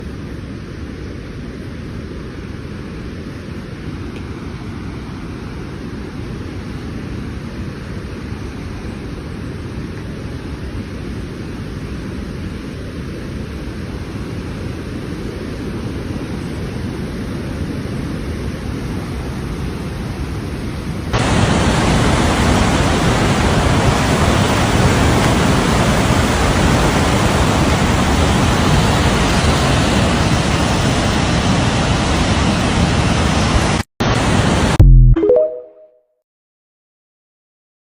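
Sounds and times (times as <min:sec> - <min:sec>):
waterfall rushing: 0:21.1 - 0:34.8.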